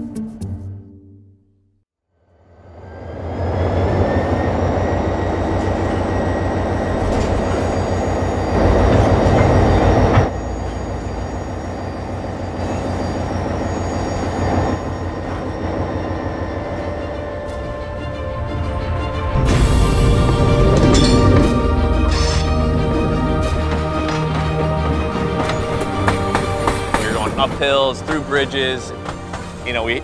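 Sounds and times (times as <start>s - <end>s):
freight train rumbling on track: 2.4s - 30.0s
high-pitched wheel squeals: 2.8s - 22.8s.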